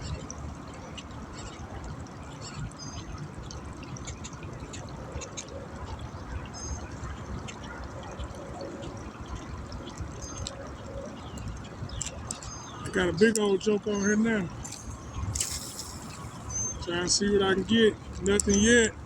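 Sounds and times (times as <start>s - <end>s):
wind rumble on microphone: 0.0s - 13.4s, 14.4s - 19.0s
small ticks: 11.4s - 12.6s
high bird chirps: 14.7s - 16.9s.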